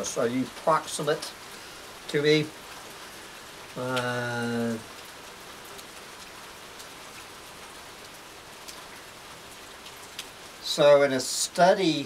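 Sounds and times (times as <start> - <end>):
steady rain falling: 0.0 - 12.0
man humming: 3.8 - 4.8.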